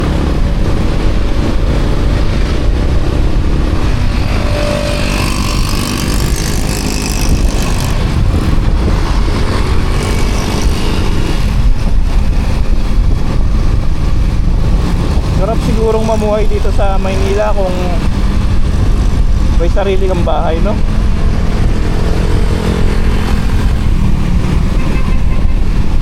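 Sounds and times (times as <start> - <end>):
motorcycle engine: 0.0 - 19.6, 20.5 - 26.0
road noise: 0.0 - 26.0
wind rumble on microphone: 0.0 - 26.0.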